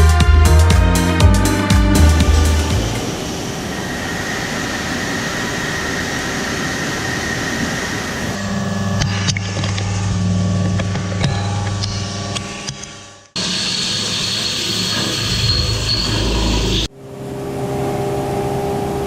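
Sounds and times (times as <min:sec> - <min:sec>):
low machine hum: 0:14.0 - 0:19.0.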